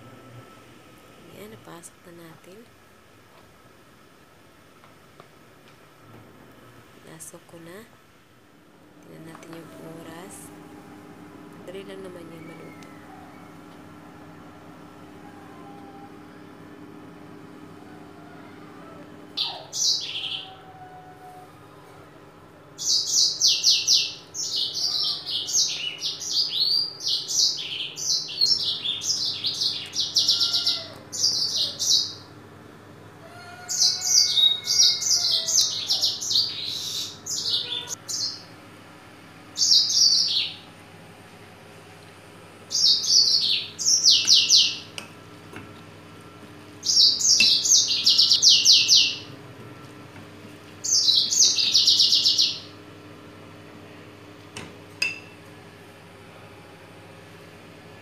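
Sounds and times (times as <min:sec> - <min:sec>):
small birds twittering: 0:11.7 - 0:13.7, 0:18.2 - 0:20.7, 0:22.8 - 0:32.3, 0:33.5 - 0:38.5, 0:39.6 - 0:40.7, 0:42.7 - 0:45.0, 0:46.8 - 0:49.3, 0:50.8 - 0:52.8.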